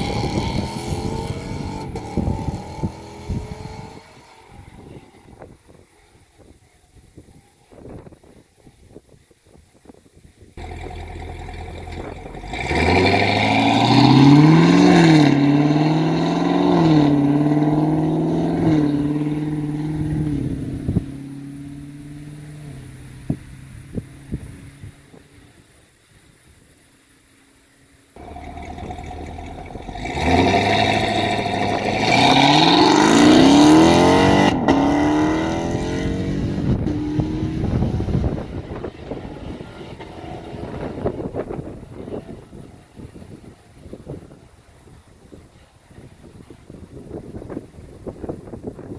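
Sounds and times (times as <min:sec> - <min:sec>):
car engine accelerating hard: 0:00.0 - 0:05.7, 0:10.6 - 0:25.1, 0:28.2 - 0:43.5
exhaust cracks: 0:00.0 - 0:06.6, 0:10.6 - 0:25.0, 0:28.2 - 0:44.4.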